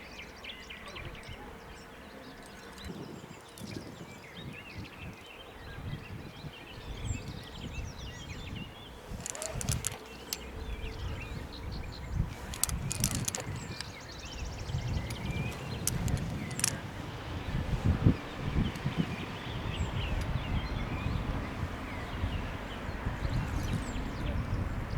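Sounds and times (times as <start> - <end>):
wind rumbling on microphone: 2.6 - 24.9
birds chirping: 6.4 - 24.9
sharp clicks: 9.1 - 10.5, 12.3 - 14.1, 14.9 - 16.8.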